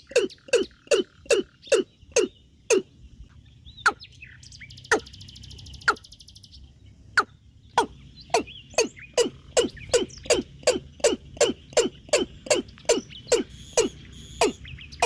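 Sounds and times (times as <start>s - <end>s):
bird calling with sharp notes: 0.0s - 15.0s.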